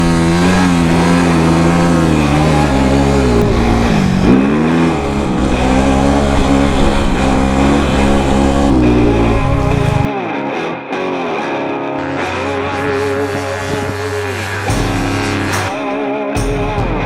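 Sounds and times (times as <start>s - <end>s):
dirt bike engine revving: 0.0s - 10.1s.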